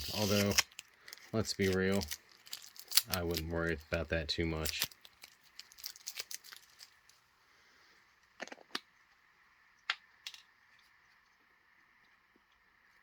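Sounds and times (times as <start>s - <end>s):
tape crackling and rustling: 0.0s - 7.3s.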